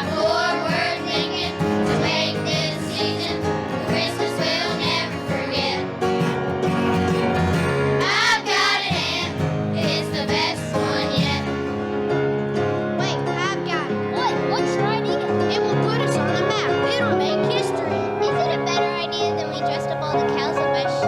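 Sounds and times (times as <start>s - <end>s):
young voices singing: 0.0s - 6.0s, 8.0s - 11.6s, 13.7s - 21.0s
instrumental accompaniment: 0.0s - 21.0s.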